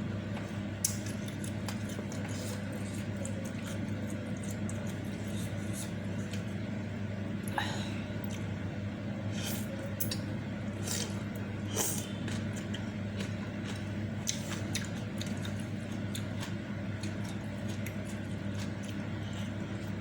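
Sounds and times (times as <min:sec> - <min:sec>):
steady low hum: 0:00.0 - 0:20.0
wet chewing and smacking: 0:00.8 - 0:06.5, 0:10.0 - 0:20.0.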